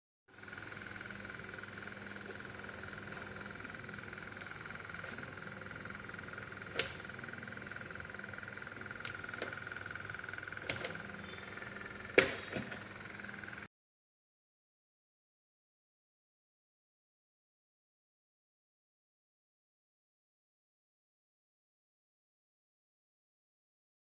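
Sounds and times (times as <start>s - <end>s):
exhaust fan humming and whining: 0.3s - 13.7s.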